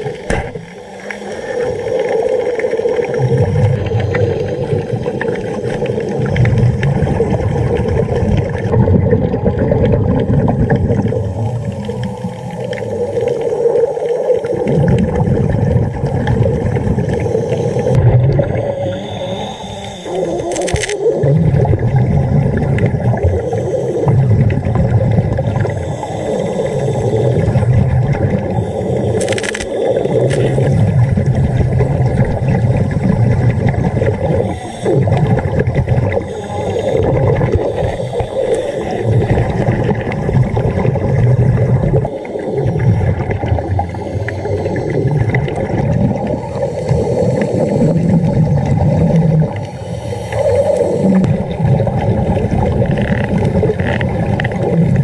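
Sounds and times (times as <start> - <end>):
diver breathing through regulator: 0.0 - 6.2, 16.5 - 21.3, 23.0 - 51.8
bubbles gurgling underwater: 0.0 - 55.0.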